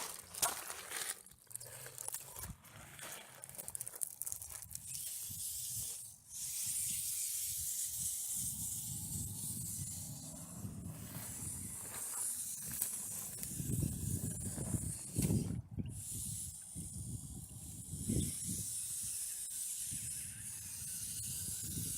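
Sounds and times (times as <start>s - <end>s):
wind buffeting microphone: 8.0s - 12.0s, 12.6s - 19.2s, 19.8s - 21.9s.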